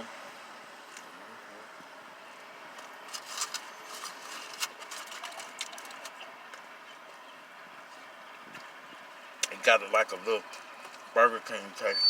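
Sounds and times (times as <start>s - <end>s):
food and wrapping crinkling: 3.1s - 6.2s.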